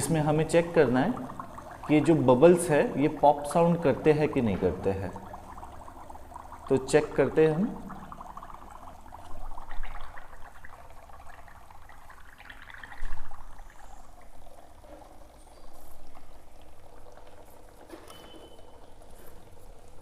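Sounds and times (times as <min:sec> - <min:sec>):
bubbles popping: 0:00.0 - 0:17.9
gas bubbling through soapy water: 0:00.0 - 0:17.9.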